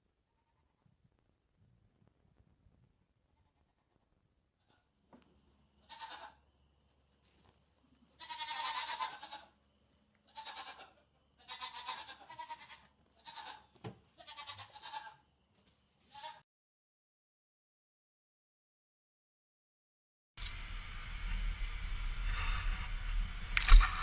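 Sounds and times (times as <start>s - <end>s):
goat bleating: 3.4s - 4.9s, 5.8s - 6.4s, 7.9s - 9.6s, 10.3s - 15.2s, 16.1s - 16.4s.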